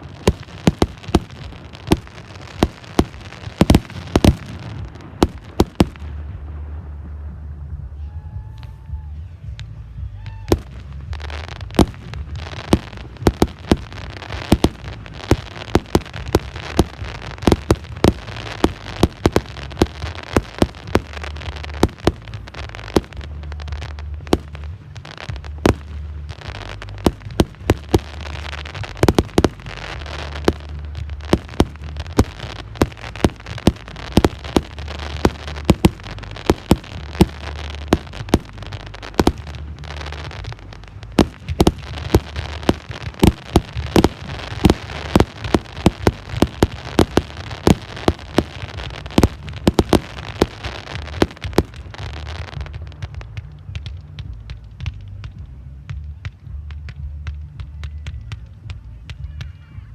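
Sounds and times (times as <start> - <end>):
fireworks bangs: 0.0 - 59.5
fireworks crackle: 0.0 - 59.9.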